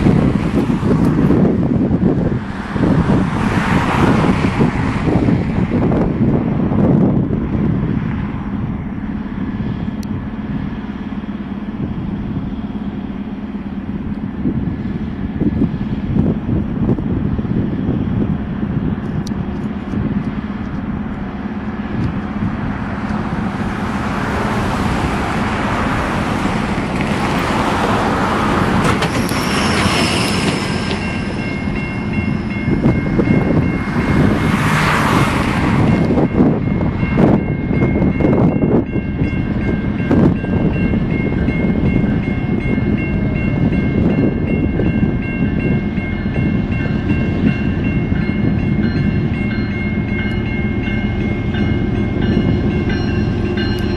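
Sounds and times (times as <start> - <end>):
diesel locomotive engine drone: 0.0 - 53.9
wheels clicking over rail joints: 25.3 - 33.4
high-pitched ringing: 35.9 - 53.9.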